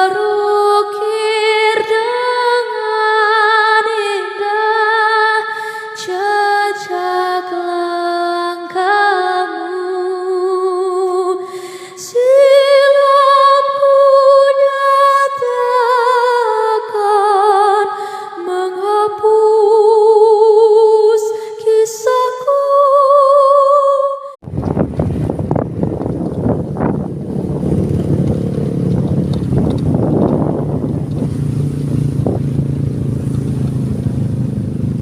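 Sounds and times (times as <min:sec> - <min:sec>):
woman singing with vibrato: 0:00.0 - 0:24.4
loud steady rushing noise: 0:24.5 - 0:35.0.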